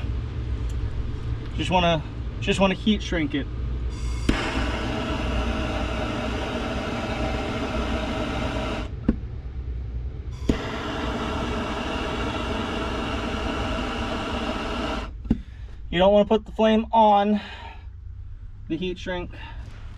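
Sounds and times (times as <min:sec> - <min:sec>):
gas torch hissing: 0:04.0 - 0:08.9, 0:10.3 - 0:15.2.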